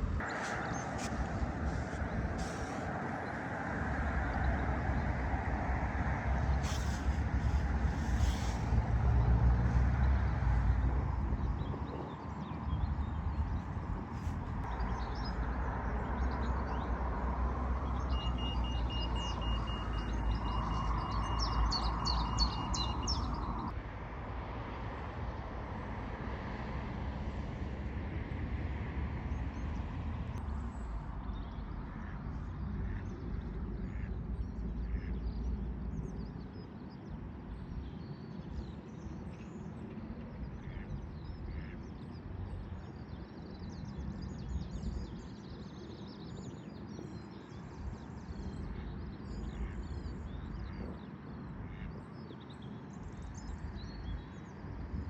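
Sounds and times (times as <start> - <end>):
road traffic rumble: 0.0 - 55.0
small birds chirping: 17.8 - 23.7.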